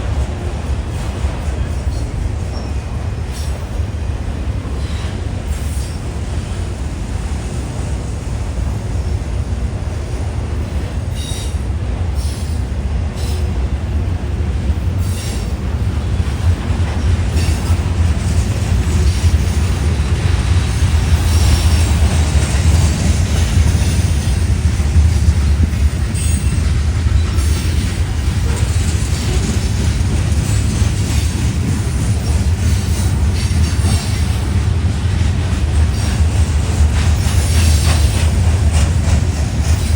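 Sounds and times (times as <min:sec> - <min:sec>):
freight train rumbling past: 0:00.0 - 0:39.9
high wheel squeals: 0:25.8 - 0:29.6.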